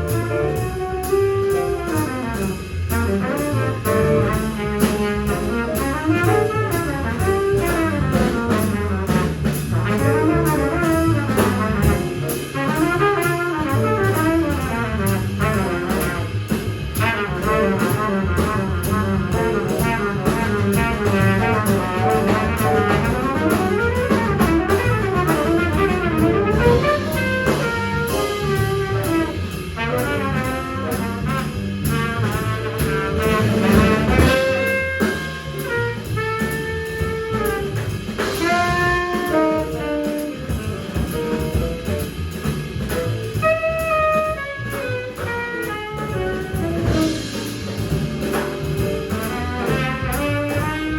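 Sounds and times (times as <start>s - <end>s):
trumpet: 0.0s - 41.9s, 43.4s - 50.9s
jazz rhythm section with drums: 0.0s - 50.9s
tenor saxophone: 38.4s - 40.4s, 43.4s - 47.2s.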